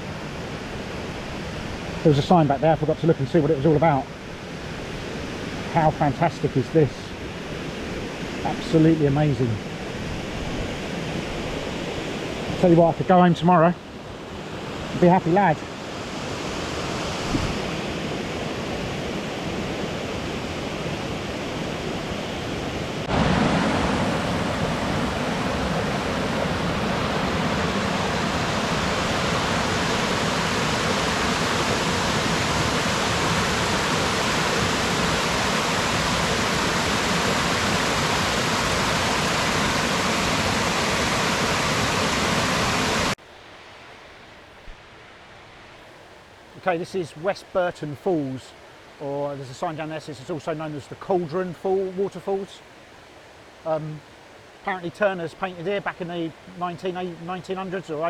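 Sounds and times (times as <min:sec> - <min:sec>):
waterfall rushing: 0:14.0 - 0:43.2.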